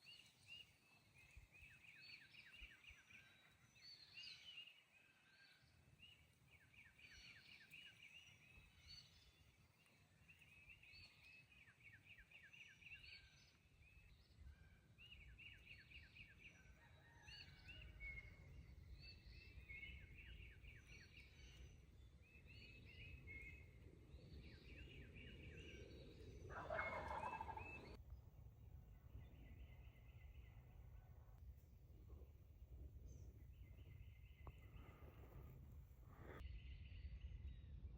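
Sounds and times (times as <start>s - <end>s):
songbird calls: 0.0s - 28.0s
wild turkey gobbling: 26.5s - 28.0s.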